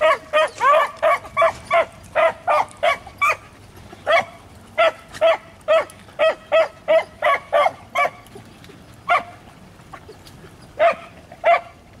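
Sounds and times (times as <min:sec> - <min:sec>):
hounds barking: 0:00.0 - 0:08.2, 0:09.1 - 0:09.4, 0:10.8 - 0:11.8.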